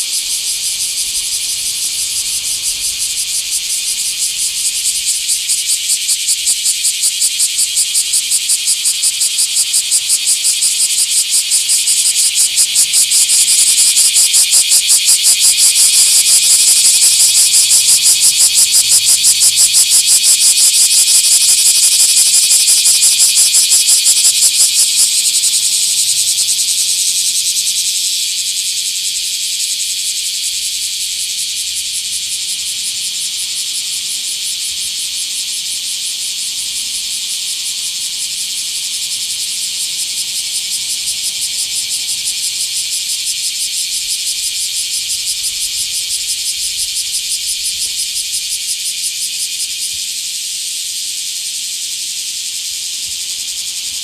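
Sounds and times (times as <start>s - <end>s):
cicada pulsing buzz: 0.0s - 54.0s.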